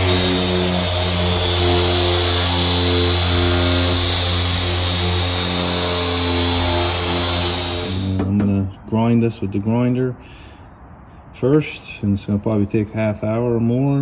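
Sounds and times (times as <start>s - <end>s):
power grinder whining: 0.0s - 8.5s.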